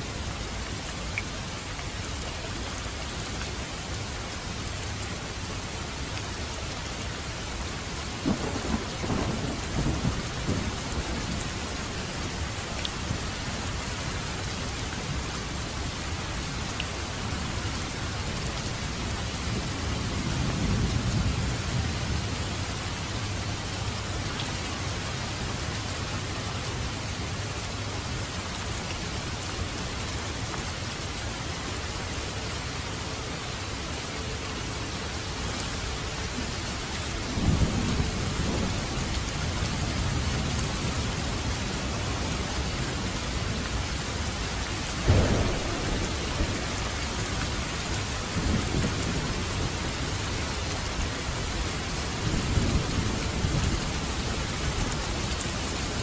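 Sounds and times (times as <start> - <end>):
steady rain: 0.0 - 56.0
low thunder rolls: 8.2 - 13.2, 45.0 - 50.2.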